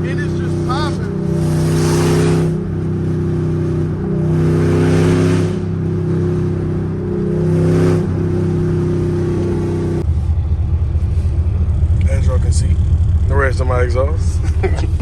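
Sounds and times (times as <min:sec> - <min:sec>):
car exhaust droning: 0:00.0 - 0:15.0.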